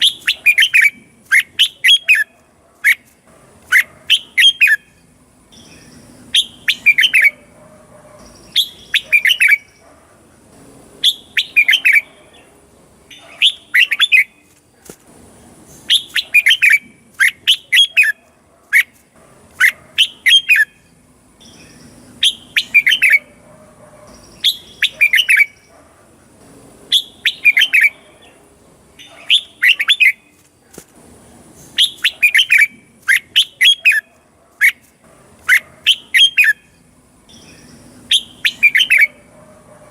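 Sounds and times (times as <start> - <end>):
bird singing whistled phrases: 0.0 - 2.3, 5.6 - 7.4, 8.4 - 9.8, 11.0 - 12.1, 13.1 - 14.4, 15.9 - 18.2, 21.4 - 23.3, 24.2 - 25.6, 26.9 - 28.0, 29.0 - 30.2, 31.8 - 34.0, 35.9 - 36.6, 37.3 - 39.2.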